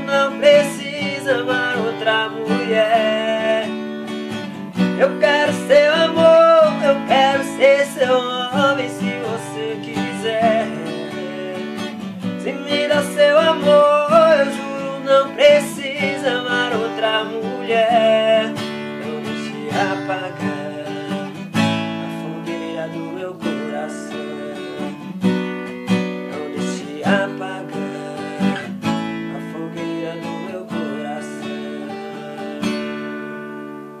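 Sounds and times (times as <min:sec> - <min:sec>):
acoustic guitar strumming chords: 0:00.0 - 0:34.0.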